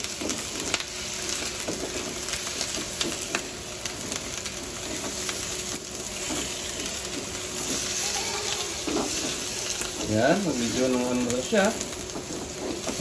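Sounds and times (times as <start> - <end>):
meat sizzling in hot oil: 0.0 - 13.0
spatula scraping and knocking pan: 6.2 - 11.3, 12.0 - 13.0.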